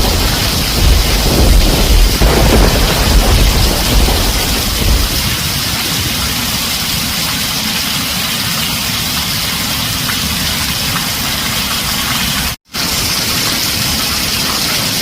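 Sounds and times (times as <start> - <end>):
heavy rain on a tin roof: 0.0 - 15.0.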